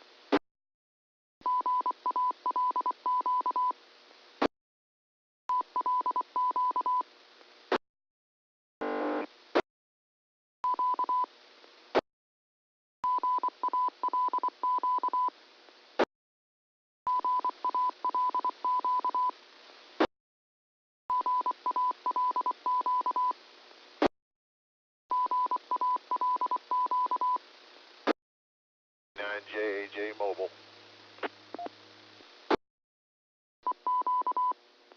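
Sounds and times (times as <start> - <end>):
radio channel hiss: 29.2 - 31.7
morse code beeping: 33.9 - 34.5.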